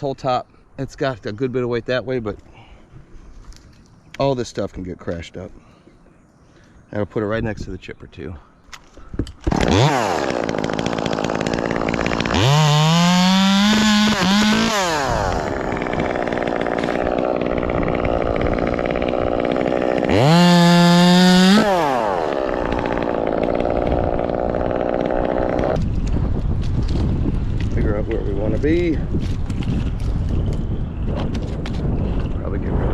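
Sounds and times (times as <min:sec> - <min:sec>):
chainsaw idling and revving: 0:09.4 - 0:26.1.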